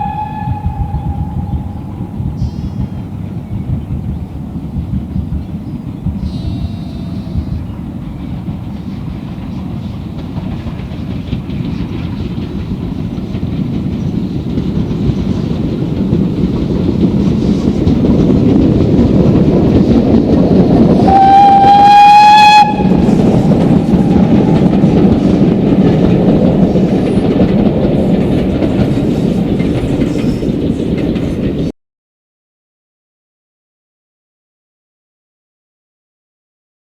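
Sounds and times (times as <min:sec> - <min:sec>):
steam whistle blast: 0:00.0 - 0:02.7, 0:21.0 - 0:24.8
steam train running noise: 0:00.0 - 0:31.7.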